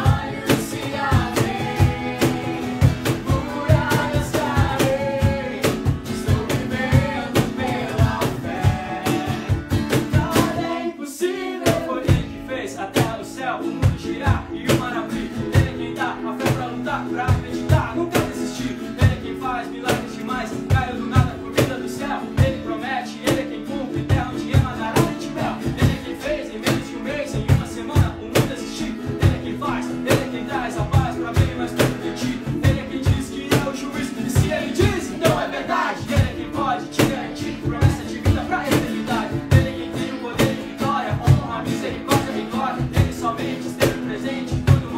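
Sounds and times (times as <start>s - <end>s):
steady beat: 0.0s - 10.8s
guitar: 0.0s - 44.9s
person singing: 0.0s - 44.9s.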